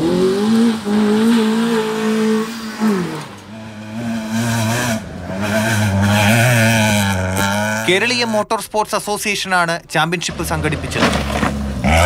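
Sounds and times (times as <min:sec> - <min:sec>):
car engine revving hard: 0:00.0 - 0:08.0.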